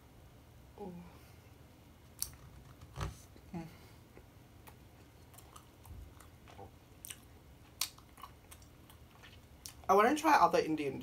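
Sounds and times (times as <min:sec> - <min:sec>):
mouth chewing noises: 0:04.6 - 0:09.9.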